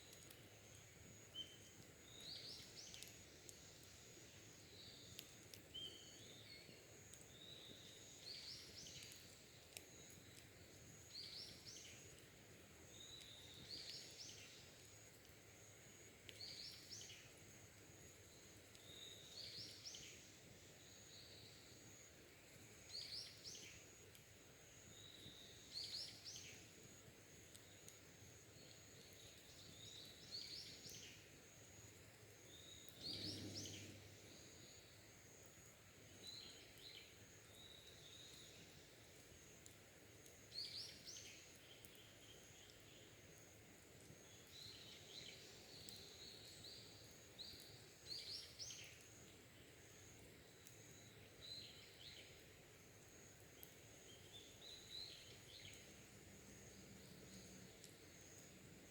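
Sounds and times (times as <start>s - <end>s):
birds chirping: 32.8s - 34.3s.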